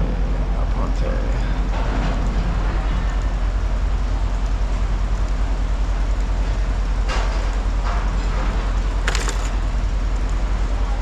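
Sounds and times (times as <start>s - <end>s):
brief clatter: 9.1s - 9.6s.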